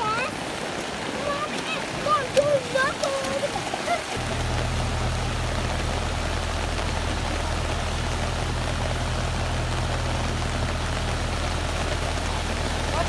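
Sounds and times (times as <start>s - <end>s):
vehicle engine idling: 4.2s - 13.0s.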